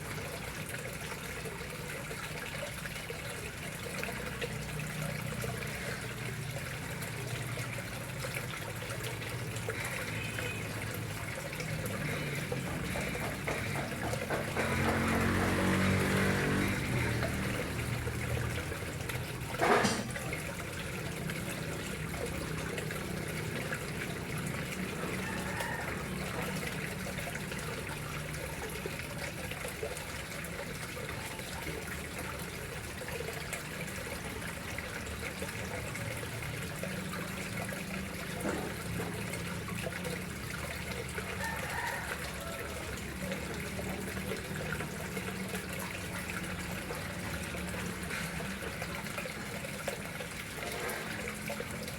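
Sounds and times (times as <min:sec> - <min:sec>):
water trickling into pond: 0:00.0 - 0:51.9.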